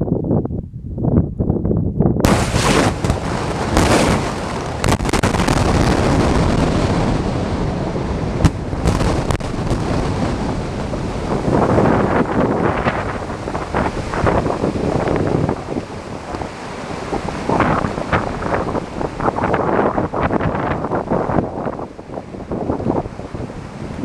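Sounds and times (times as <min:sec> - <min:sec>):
wind buffeting microphone: 0:00.0 - 0:24.0
sharp cracks: 0:02.3 - 0:06.8, 0:08.4 - 0:11.0
quarry blast: 0:02.3 - 0:11.2.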